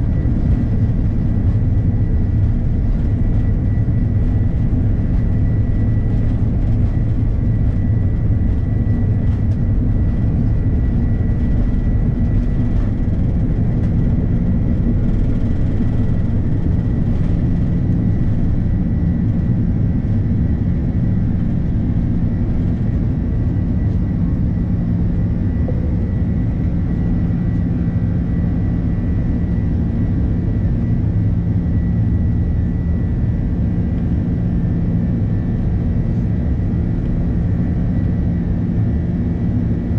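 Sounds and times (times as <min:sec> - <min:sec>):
jet engines in cabin rumbling: 0:00.0 - 0:39.9
faint high whine: 0:24.5 - 0:29.6.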